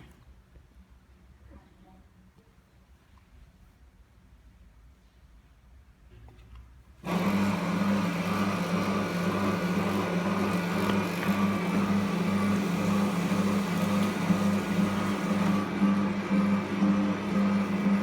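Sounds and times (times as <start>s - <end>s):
vacuum cleaner running: 7.0s - 18.0s.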